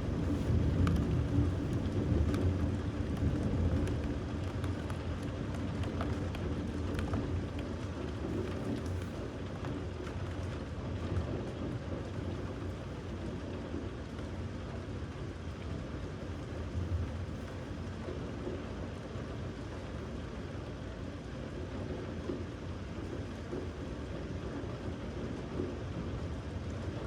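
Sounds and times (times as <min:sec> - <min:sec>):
steady rain: 0:00.0 - 0:27.0
faint raindrop ticks: 0:00.1 - 0:27.0.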